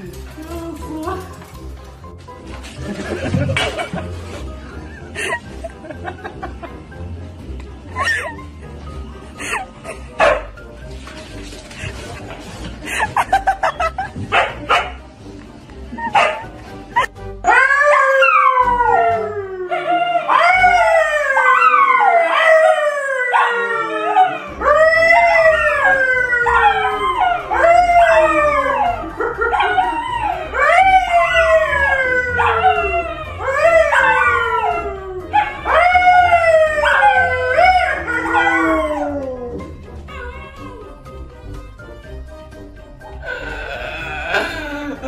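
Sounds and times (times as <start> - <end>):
dog howling: 17.5 - 41.0.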